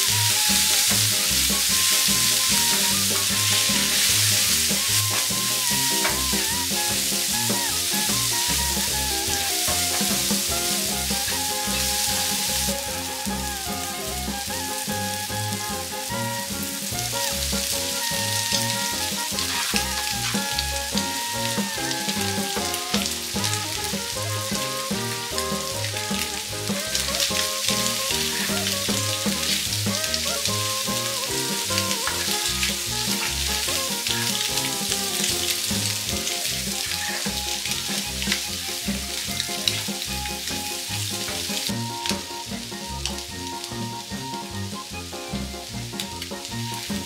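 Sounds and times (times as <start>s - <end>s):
food sizzling in a frying pan: 0.0s - 47.0s
wooden spatula scraping pan: 18.2s - 30.1s.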